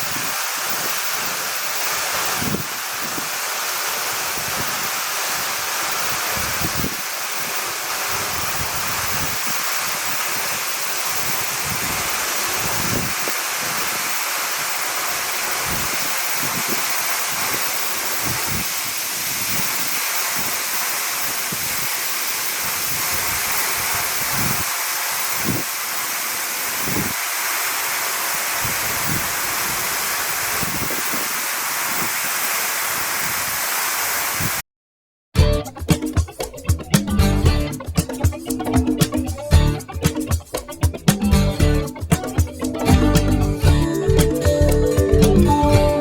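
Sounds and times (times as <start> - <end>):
waterfall rushing: 0.0 - 34.6
wind buffeting microphone: 2.4 - 3.3, 6.4 - 7.0, 11.2 - 13.9, 18.2 - 20.5, 25.4 - 25.7, 26.8 - 27.2, 28.6 - 32.2.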